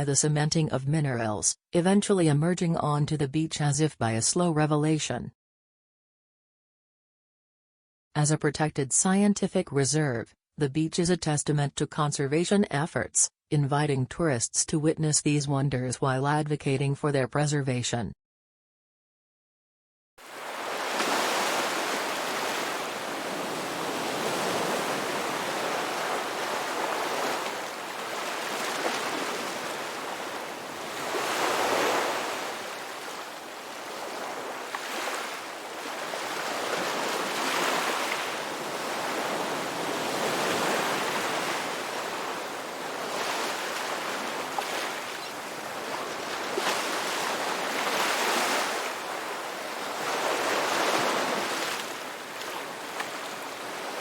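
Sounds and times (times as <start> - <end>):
ocean surf washing onto beach: 20.2 - 54.0.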